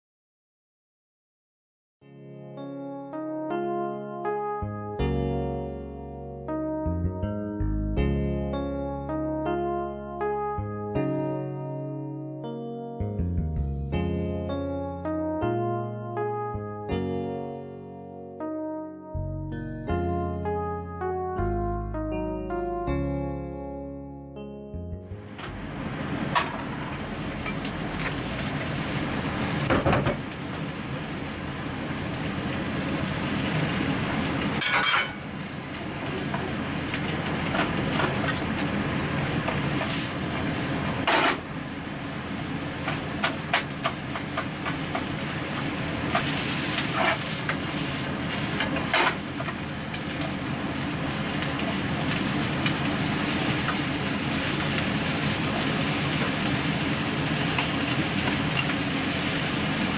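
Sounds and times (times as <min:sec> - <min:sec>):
bean sprouts sizzling in a pan: 0:25.7 - 0:59.9
utensil clacking against a pan: 0:42.9 - 0:47.7.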